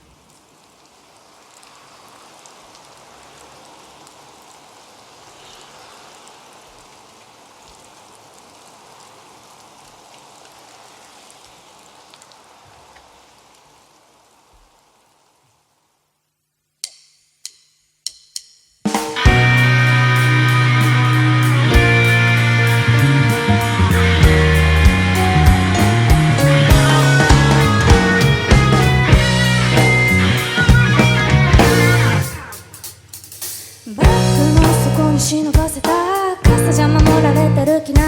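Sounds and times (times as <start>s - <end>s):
steady rain-like hiss: 0.0s - 17.6s, 18.4s - 38.0s
drumstick clicks: 16.8s - 19.2s.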